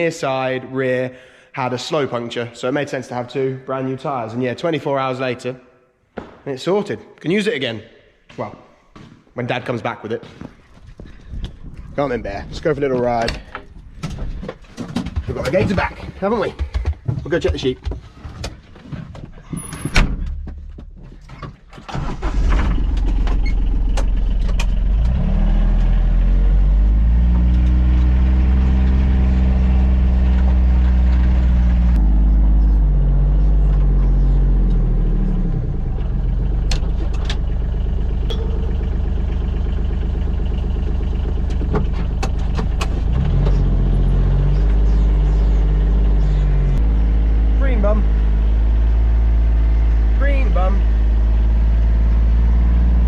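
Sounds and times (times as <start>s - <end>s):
diesel engine running: 21.9s - 53.0s.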